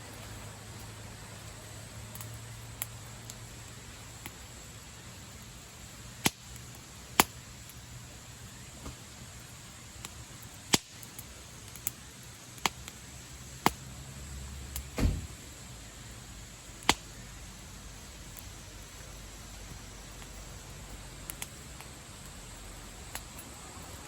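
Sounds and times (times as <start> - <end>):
fire hiss: 0.0 - 24.0
campfire crackling and popping: 0.1 - 24.0
dull knock: 15.0 - 15.4.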